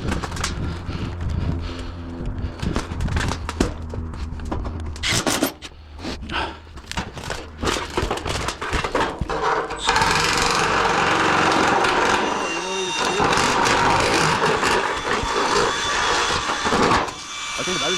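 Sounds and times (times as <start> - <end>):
knocks and scrapes on metal roofing: 7.0 - 17.1.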